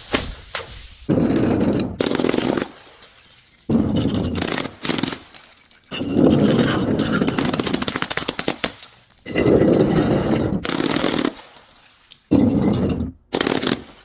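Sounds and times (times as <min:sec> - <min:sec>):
objects crackling as crushed: 0:03.7 - 0:14.0.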